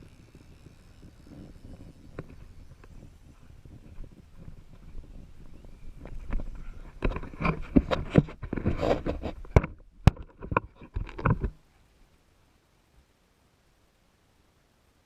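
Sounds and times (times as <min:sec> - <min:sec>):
knocks clicks and scraping: 0:06.0 - 0:11.6.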